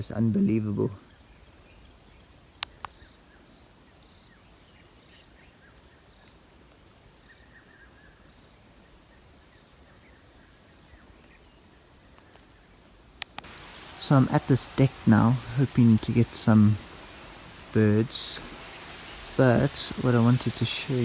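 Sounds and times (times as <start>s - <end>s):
distant bird calls: 0.0s - 21.0s
sharp clicks: 13.2s - 21.0s.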